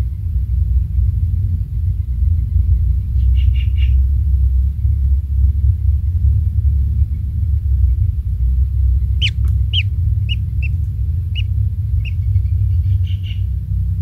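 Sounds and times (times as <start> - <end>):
steady low rumble: 0.0 - 14.0
faint bird chirps: 8.9 - 13.5
kingfisher calls: 9.1 - 13.5.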